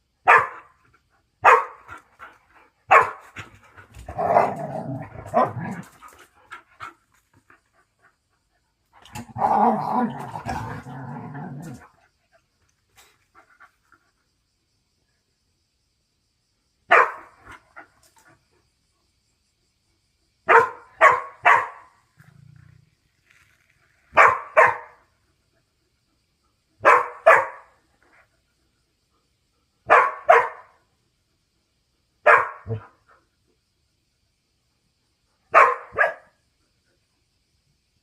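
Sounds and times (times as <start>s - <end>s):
dog barking: 0.2s - 0.7s, 1.4s - 1.9s, 2.9s - 3.2s, 16.9s - 17.3s, 20.5s - 21.9s, 24.2s - 25.0s, 26.8s - 27.7s, 29.9s - 30.8s, 32.2s - 32.9s, 35.5s - 36.4s.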